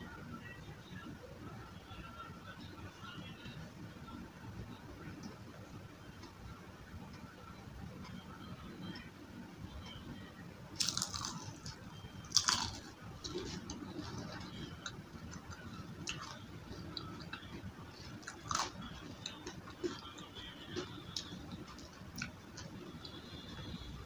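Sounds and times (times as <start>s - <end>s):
chewing with crisp crackles: 10.7s - 23.9s
bite into crunchy onion ring: 10.8s - 11.7s, 12.3s - 13.6s.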